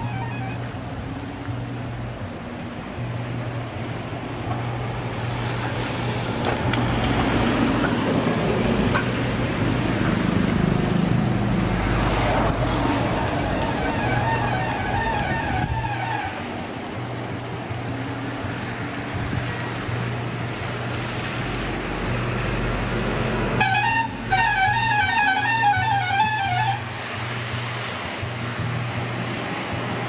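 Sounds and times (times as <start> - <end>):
vehicle road and wind noise: 0.0 - 30.0.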